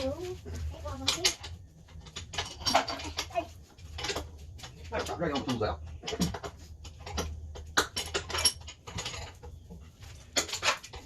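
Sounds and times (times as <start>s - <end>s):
metal hand tools clattering: 0.9s - 9.6s.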